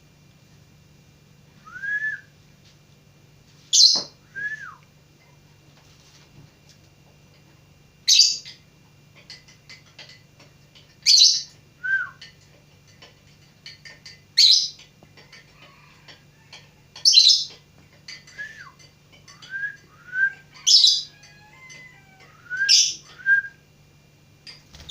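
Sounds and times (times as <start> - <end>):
whistled bird notes: 22.4 - 23.6.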